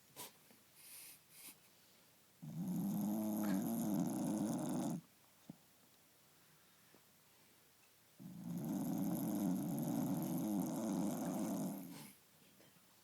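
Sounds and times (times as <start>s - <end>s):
dog snoring: 2.4s - 5.1s, 8.2s - 12.2s.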